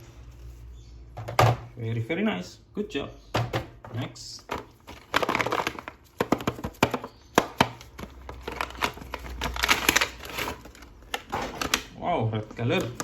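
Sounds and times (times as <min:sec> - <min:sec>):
packaging crinkling: 0:04.5 - 0:13.0.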